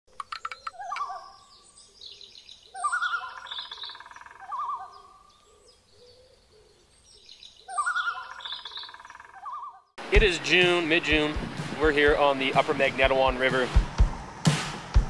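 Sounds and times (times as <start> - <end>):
birds chirping and calling: 0.1 - 10.0.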